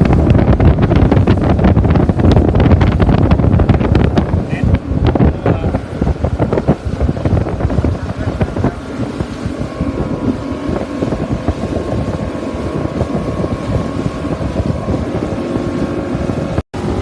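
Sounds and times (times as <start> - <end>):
boat engine running: 0.0 - 17.0
wind buffeting microphone: 0.0 - 17.0.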